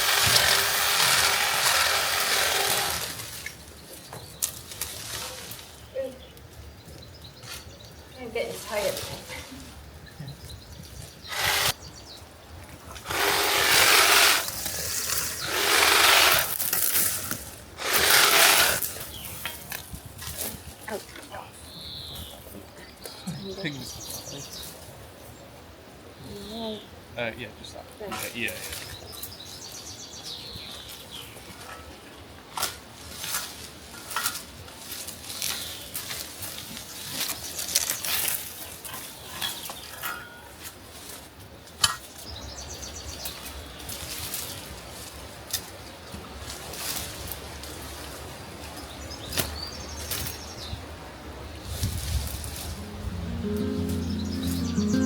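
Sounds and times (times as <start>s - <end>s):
hand tool rasping: 11.3s - 11.7s, 13.1s - 14.6s, 15.4s - 16.6s, 17.8s - 18.9s.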